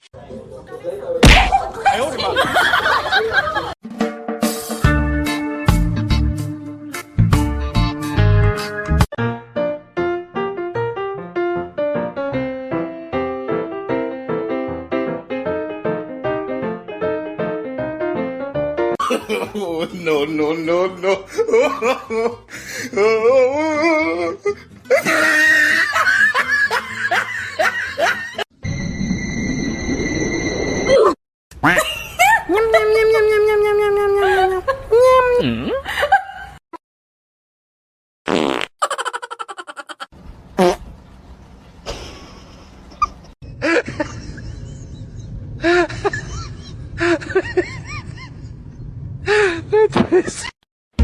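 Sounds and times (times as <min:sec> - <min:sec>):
background music: 0:03.8 - 0:18.9
person laughing: 0:19.0 - 0:19.9, 0:21.0 - 0:28.4, 0:31.6 - 0:36.6, 0:38.8 - 0:40.1, 0:43.0 - 0:48.4
fart-like buzzing rattle: 0:38.3 - 0:38.7, 0:40.6 - 0:40.8
squeaky chirps: 0:42.7 - 0:43.3.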